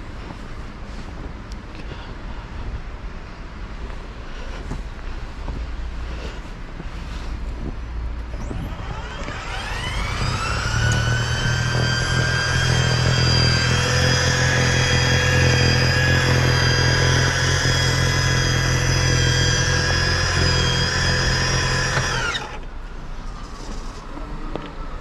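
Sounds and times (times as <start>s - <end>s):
small engine running: 8.3s - 22.7s.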